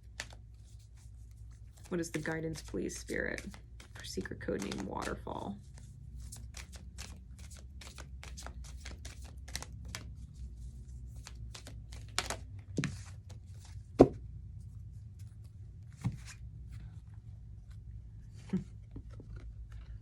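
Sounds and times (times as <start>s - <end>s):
cards being shuffled: 0.0s - 14.2s, 15.2s - 16.9s.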